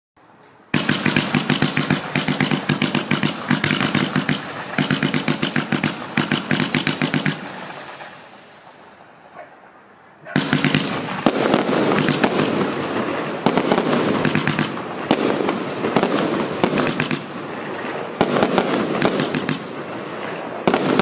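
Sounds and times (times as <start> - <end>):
fireworks firing in rapid volleys: 0.7 - 8.9, 10.3 - 21.0.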